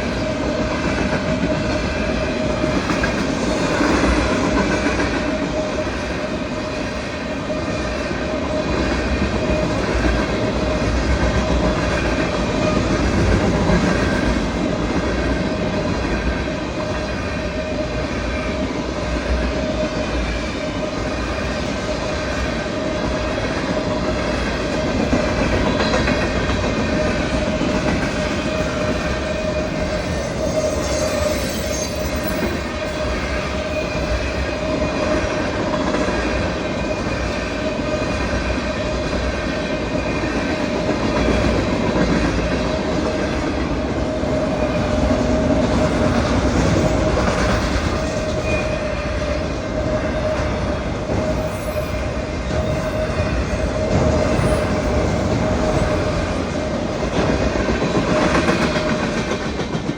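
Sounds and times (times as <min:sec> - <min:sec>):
train wheels rumbling on rails: 0:00.0 - 0:59.9
high-pitched wheel squeal: 0:29.1 - 0:34.5.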